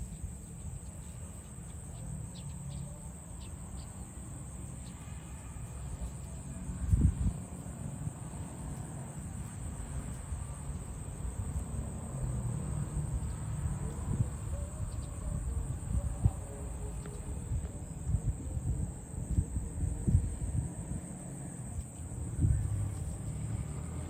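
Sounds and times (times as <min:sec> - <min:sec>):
insects chirring: 0:00.0 - 0:24.0
wind rumble on microphone: 0:05.8 - 0:24.0.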